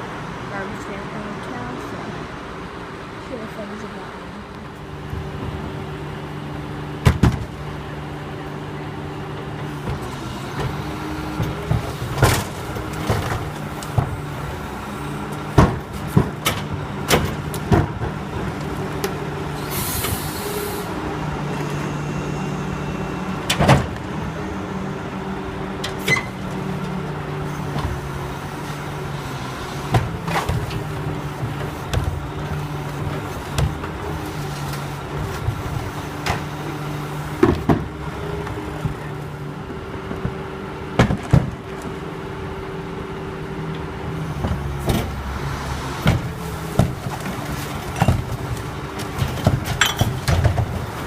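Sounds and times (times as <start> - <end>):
garbage truck engine humming: 0.0 - 51.0
air hiss: 19.6 - 20.9
metallic clanks and bangs: 46.0 - 51.0.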